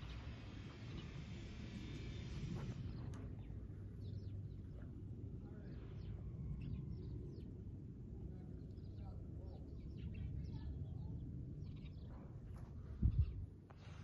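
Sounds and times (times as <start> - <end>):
small birds chirping: 2.9 - 7.6, 8.4 - 13.4.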